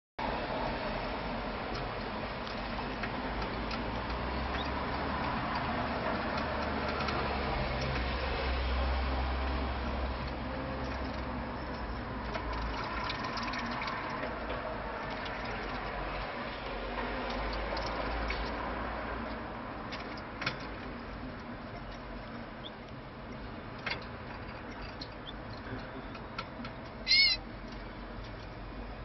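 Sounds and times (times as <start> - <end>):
bird splashing water: 1.7 - 26.4
bird chirp: 4.4 - 4.8, 22.6 - 22.9, 24.6 - 27.4
bird splashing in water: 10.8 - 18.7.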